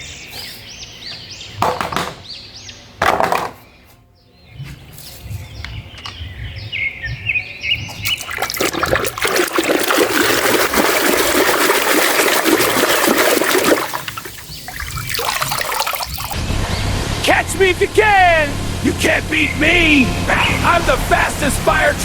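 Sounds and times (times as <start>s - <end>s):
water spraying and splashing: 7.9s - 22.0s.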